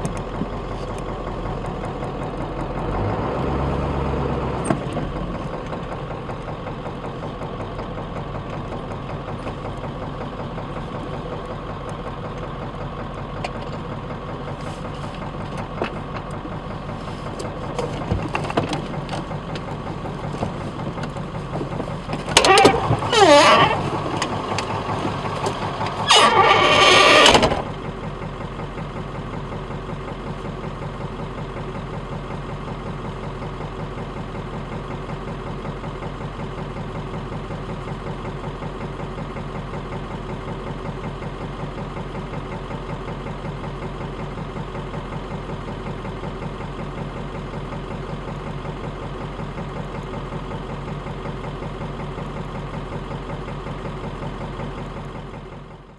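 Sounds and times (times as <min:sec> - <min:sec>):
vehicle engine idling: 0:00.0 - 0:55.9.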